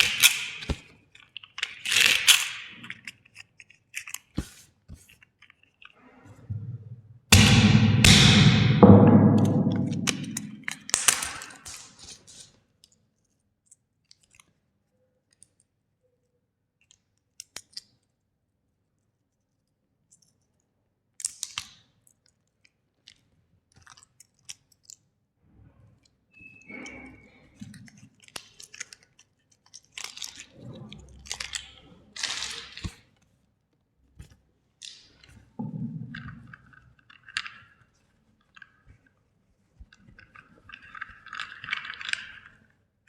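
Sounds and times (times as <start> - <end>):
packaging crunching and crackling: 0.0 - 6.0.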